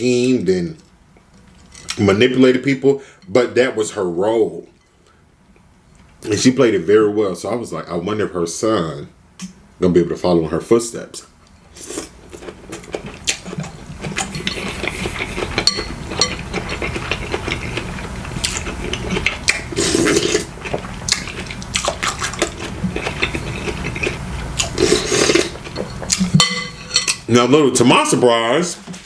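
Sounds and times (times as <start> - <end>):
slurping broth: 11.7 - 26.3
chewing: 11.8 - 26.4.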